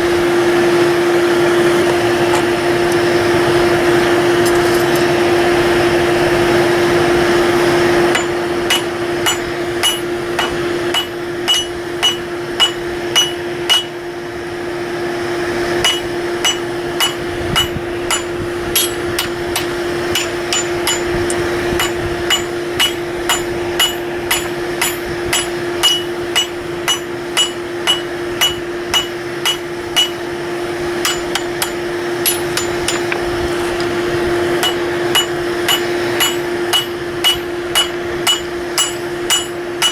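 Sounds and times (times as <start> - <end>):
blower hum: 0.0 - 39.9
hammer striking steel on anvil: 8.1 - 14.1, 15.8 - 39.9.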